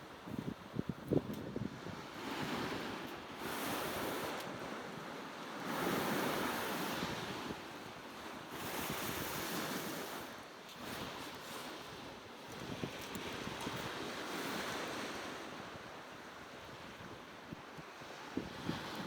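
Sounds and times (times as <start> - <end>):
sea waves washing onto shore: 1.7 - 16.7.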